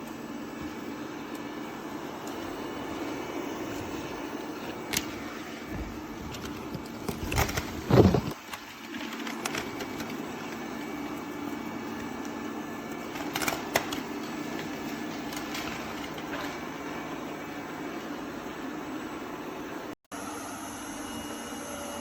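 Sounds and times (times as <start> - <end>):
robot vacuum motor whir: 0.0 - 12.4.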